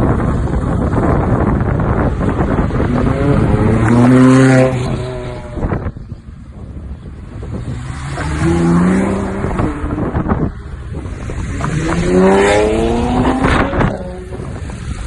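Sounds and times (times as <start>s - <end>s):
sports car engine revving: 7.4s - 14.8s.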